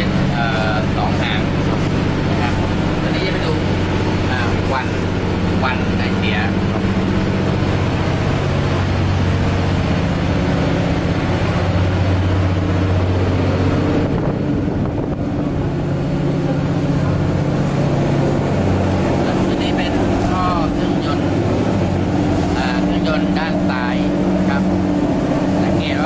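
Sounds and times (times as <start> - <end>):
marine diesel engines droning: 0.0 - 26.0.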